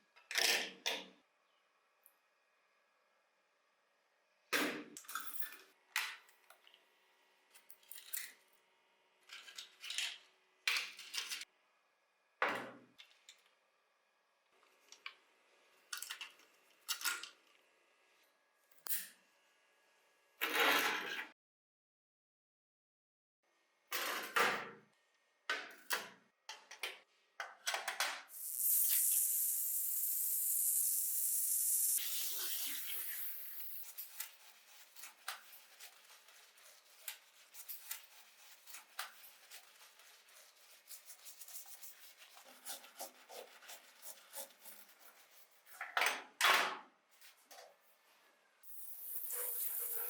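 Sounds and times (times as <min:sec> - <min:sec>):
high spray hiss: 0:28.3 - 0:34.0.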